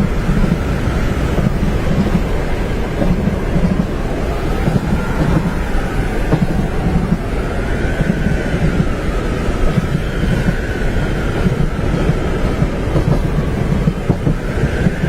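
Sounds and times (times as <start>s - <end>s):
train rumbling on tracks: 0.0s - 15.0s.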